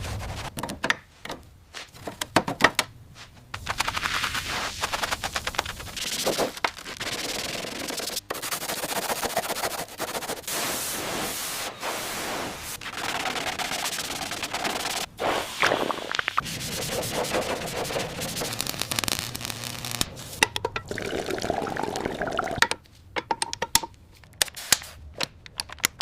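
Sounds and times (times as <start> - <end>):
grinding or sanding: 16.4 - 20.0.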